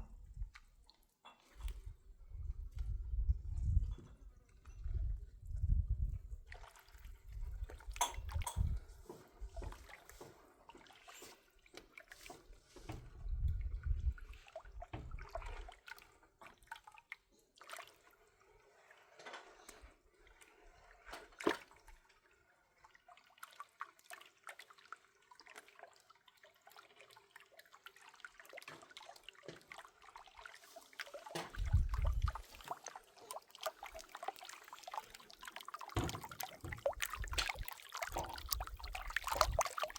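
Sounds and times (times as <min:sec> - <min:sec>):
wet sloshing and dripping: 0:00.2 - 0:39.9.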